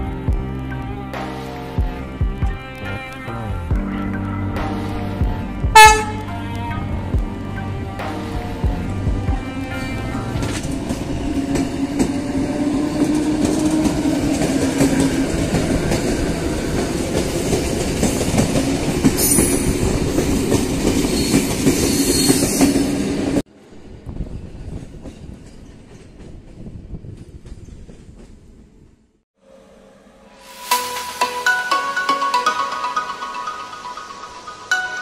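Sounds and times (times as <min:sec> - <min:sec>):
train hum: 0:03.6 - 0:30.7
distant train rumble: 0:04.2 - 0:30.3.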